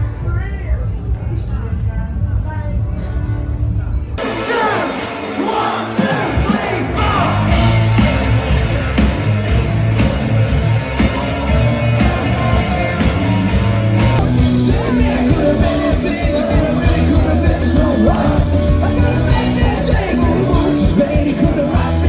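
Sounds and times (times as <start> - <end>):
loud rock music: 0.0 - 22.0
person singing: 14.0 - 22.0.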